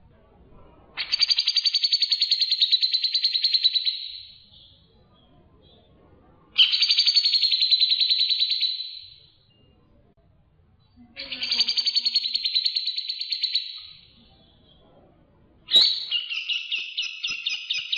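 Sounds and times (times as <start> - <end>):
songbird trilling: 6.6 - 9.1, 11.2 - 14.0, 15.7 - 17.9.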